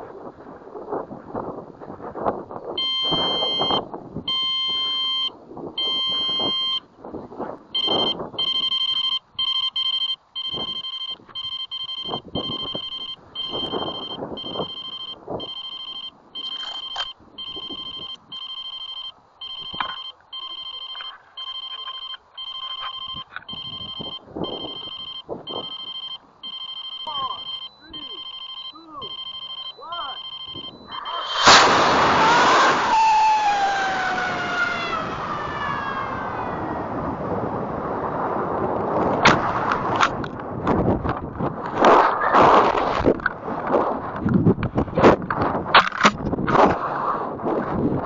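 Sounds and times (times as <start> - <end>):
wind gusts: 0.0 - 21.4, 22.2 - 48.0
electronic beeper beeping: 2.8 - 6.9, 7.8 - 36.4.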